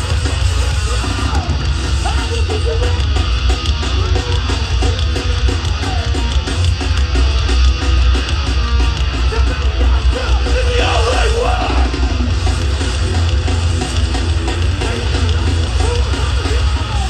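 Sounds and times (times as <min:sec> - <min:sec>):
live hardcore band playing: 0:00.0 - 0:17.0
shouted vocal: 0:10.2 - 0:12.3.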